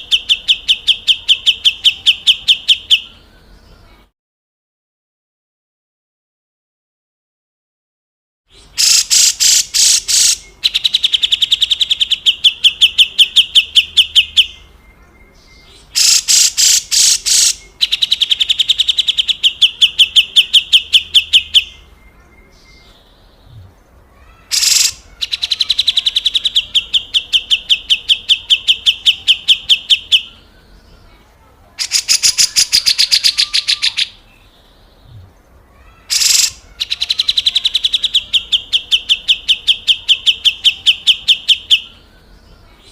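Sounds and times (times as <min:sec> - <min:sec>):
bird harsh rattling calls: 0:08.7 - 0:12.1, 0:15.9 - 0:21.7, 0:24.2 - 0:28.0, 0:31.8 - 0:34.2, 0:35.8 - 0:39.7.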